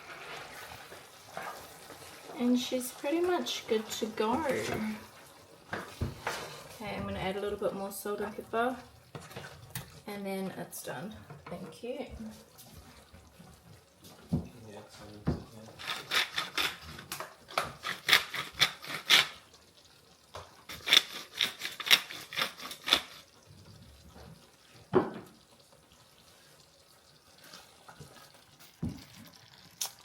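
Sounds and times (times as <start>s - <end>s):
utensils scraping cookware: 15.8s - 19.4s, 20.7s - 23.3s.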